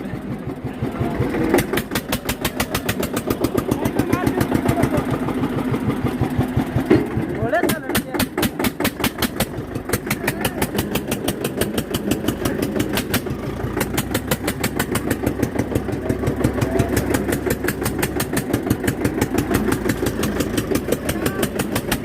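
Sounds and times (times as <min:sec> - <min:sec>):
tractor diesel engine knocking: 0:00.0 - 0:22.0.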